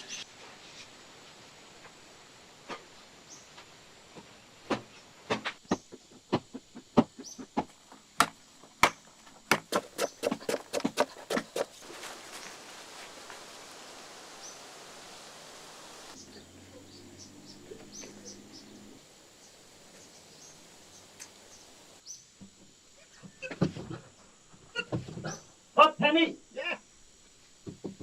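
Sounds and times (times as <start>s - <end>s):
steady hiss: 0.0s - 28.0s
sharp knocks: 4.7s - 11.7s.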